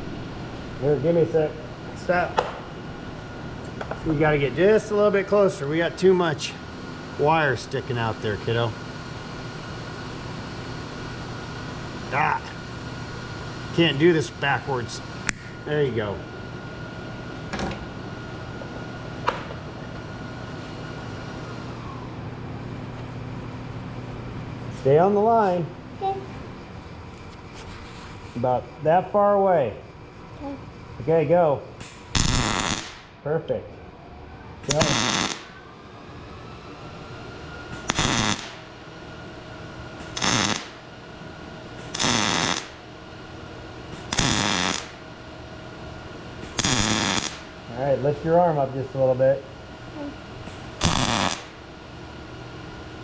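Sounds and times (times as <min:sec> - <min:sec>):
welder electrical hum: 0:00.0 - 0:53.0
welder arc crackling: 0:31.8 - 0:33.1, 0:34.6 - 0:35.6, 0:37.8 - 0:38.6, 0:40.0 - 0:40.9, 0:41.8 - 0:42.8, 0:43.9 - 0:45.0, 0:46.4 - 0:47.6, 0:50.5 - 0:51.7.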